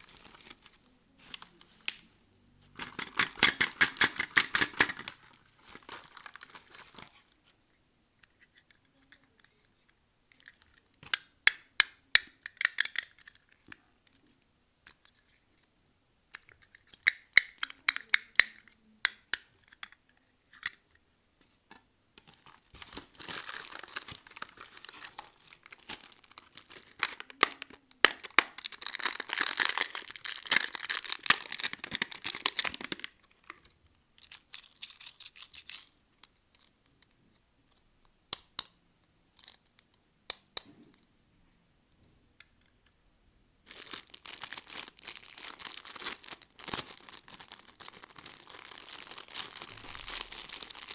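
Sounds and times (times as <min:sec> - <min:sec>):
plastic packaging crinkling: 0:00.0 - 0:02.0, 0:02.8 - 0:07.3, 0:22.2 - 0:33.6, 0:43.6 - 0:50.9.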